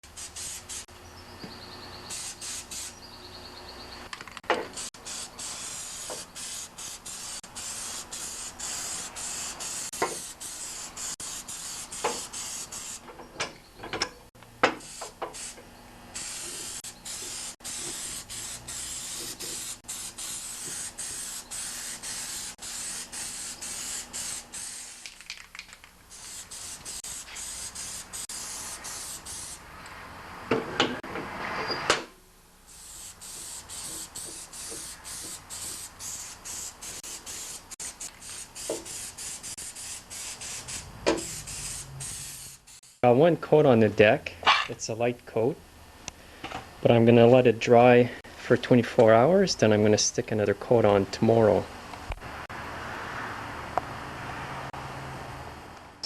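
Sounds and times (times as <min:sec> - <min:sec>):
spray paint hiss: 0:00.0 - 0:00.9, 0:02.0 - 0:03.0, 0:04.6 - 0:13.1, 0:14.8 - 0:29.6, 0:32.7 - 0:43.2.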